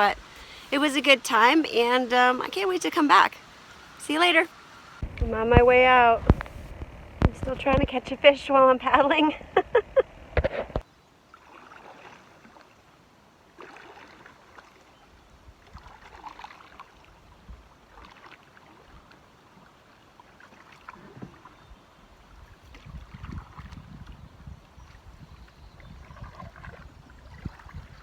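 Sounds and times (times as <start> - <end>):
canoe paddle splashing: 0.0 - 1.9, 10.4 - 28.0.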